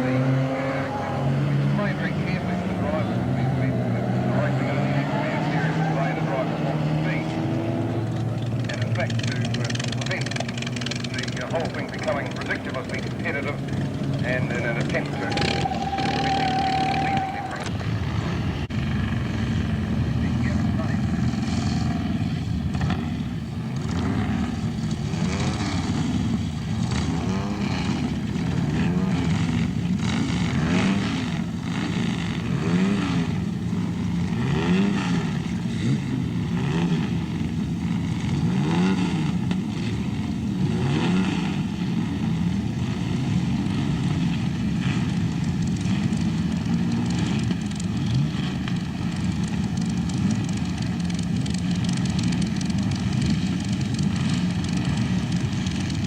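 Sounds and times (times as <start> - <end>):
racing car engines revving: 0.0 - 56.0.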